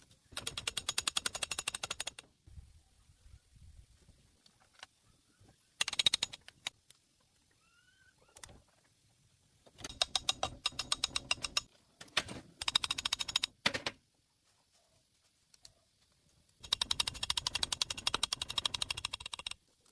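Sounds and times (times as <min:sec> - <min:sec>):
rapid mechanical clicking: 0:00.3 - 0:02.2, 0:05.8 - 0:06.8, 0:09.8 - 0:11.7, 0:12.6 - 0:13.6, 0:16.6 - 0:19.9.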